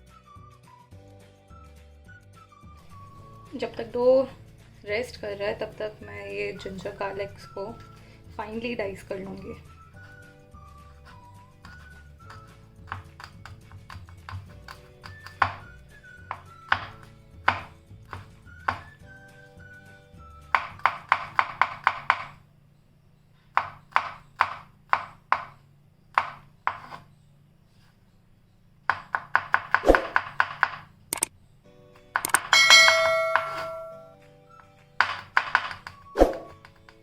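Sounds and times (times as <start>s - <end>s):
soft background music: 0.0s - 22.2s, 31.2s - 37.0s
knife chopping on board: 11.0s - 19.0s, 20.5s - 22.4s, 23.5s - 27.0s, 28.9s - 30.8s.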